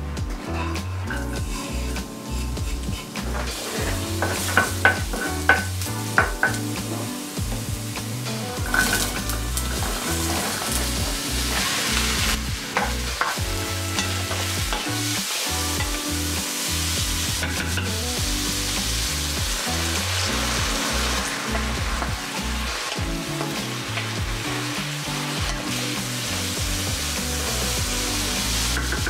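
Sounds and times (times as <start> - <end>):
wooden spoon scraping a pan: 0.5 - 6.6
vegetables sizzling in oil: 1.1 - 29.0.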